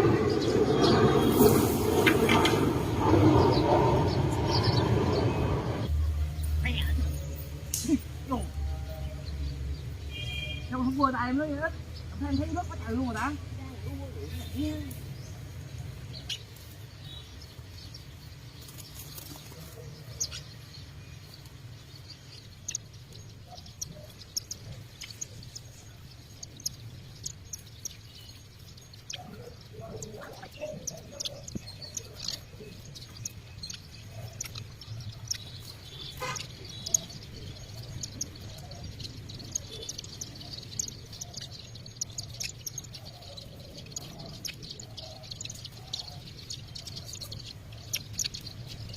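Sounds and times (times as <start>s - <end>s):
low background rumble: 0.0s - 10.0s
small birds chirping: 0.0s - 48.9s.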